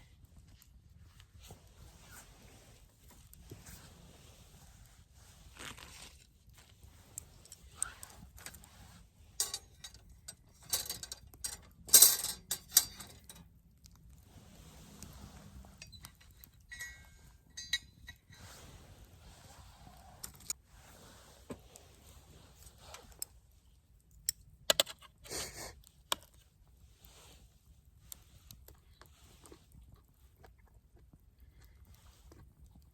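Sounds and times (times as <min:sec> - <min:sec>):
light metallic clinks: 0:09.4 - 0:13.4, 0:15.8 - 0:18.2.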